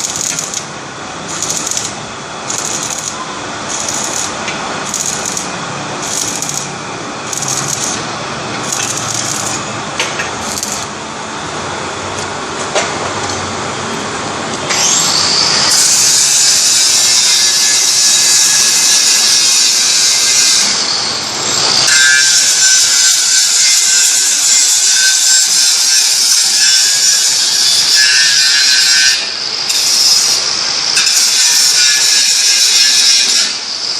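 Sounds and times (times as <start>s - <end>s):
loud steady high hiss: 0.0s - 11.9s
machinery running: 0.0s - 12.8s
short high-pitched bursts: 1.3s - 1.9s, 2.5s - 6.7s, 7.3s - 8.0s, 8.7s - 9.6s.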